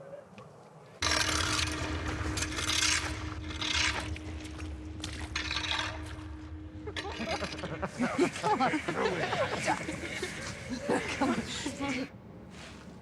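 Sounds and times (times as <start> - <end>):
faint steady hum: 0.0 - 13.0
low rumble: 1.0 - 10.9
rough scraping strokes: 1.0 - 13.0.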